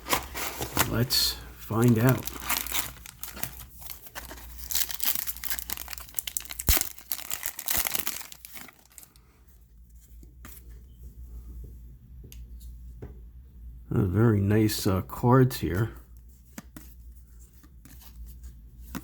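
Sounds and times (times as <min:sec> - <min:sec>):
faint handling sounds: 0:00.0 - 0:13.2
packaging being torn and crinkled: 0:01.7 - 0:09.2.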